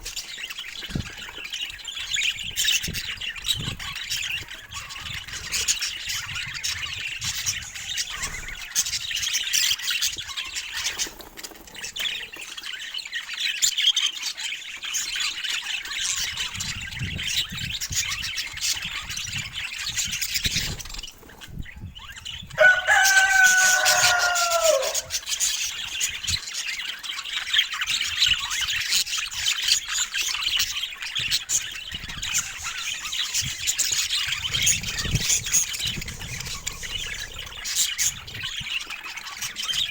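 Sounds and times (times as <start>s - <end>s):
budgerigars chattering: 22.1s - 39.9s.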